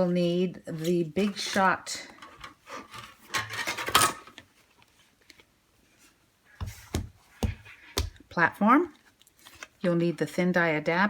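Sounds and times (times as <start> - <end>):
dull thumps on table: 6.6 - 8.2.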